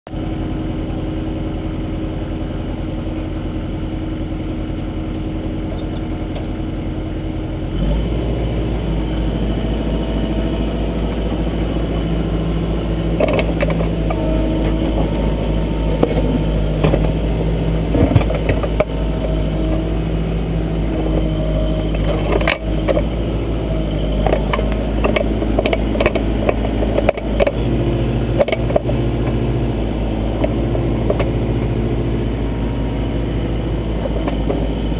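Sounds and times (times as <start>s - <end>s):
diesel engine running: 0.1s - 34.9s
backhoe bucket clanking: 13.1s - 19.9s, 24.0s - 29.5s.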